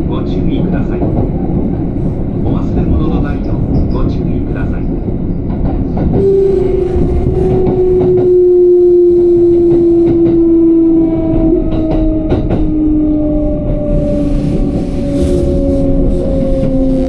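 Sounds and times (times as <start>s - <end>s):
electric train motor whine: 6.2s - 17.0s.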